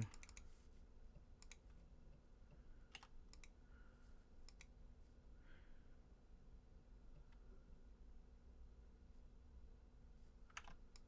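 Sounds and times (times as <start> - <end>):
computer clicks: 0.0 - 0.4, 2.9 - 3.6, 4.5 - 4.7, 10.5 - 11.0.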